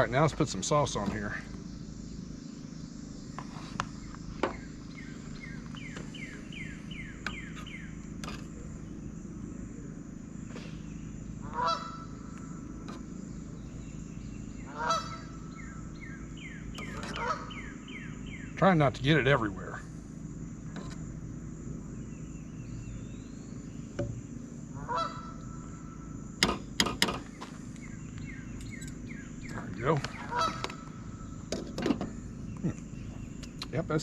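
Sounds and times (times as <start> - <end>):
large bird honking: 11.3 - 18.6, 24.6 - 26.4, 29.3 - 31.5.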